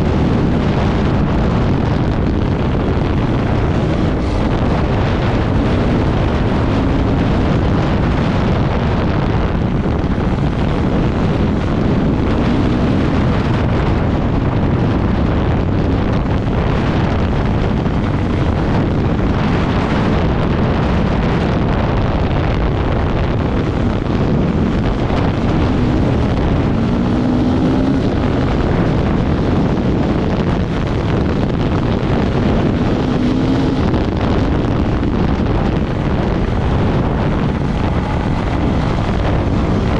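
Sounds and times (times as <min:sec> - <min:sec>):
off-road vehicle engine running: 0:00.0 - 0:39.9
wind rushing over microphone: 0:00.0 - 0:39.9.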